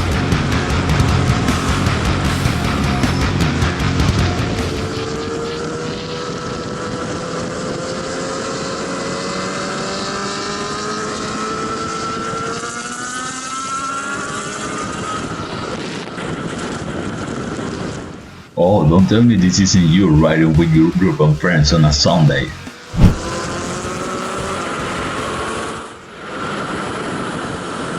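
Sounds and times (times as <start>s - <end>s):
motorcycle engine accelerating: 0.0s - 14.4s
wind rush: 22.9s - 23.4s.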